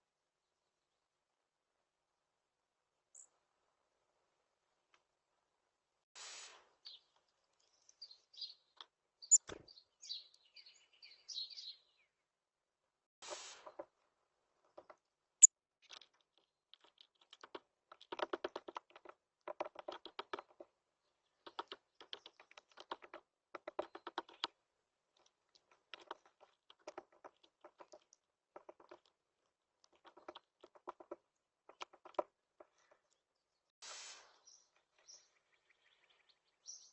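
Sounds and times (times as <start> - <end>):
bird pecking at seed: 15.8 - 33.2.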